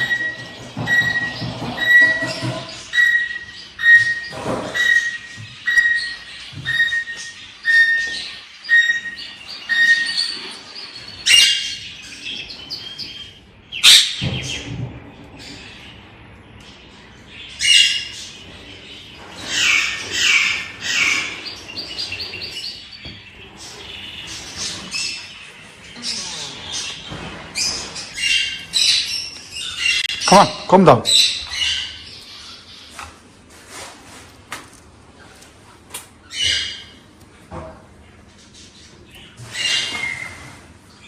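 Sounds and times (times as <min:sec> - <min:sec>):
parrots squawking: 0:00.0 - 0:14.7, 0:17.3 - 0:32.9, 0:36.3 - 0:37.0
parrots chirping: 0:00.0 - 0:33.2, 0:36.2 - 0:37.2, 0:38.2 - 0:41.0.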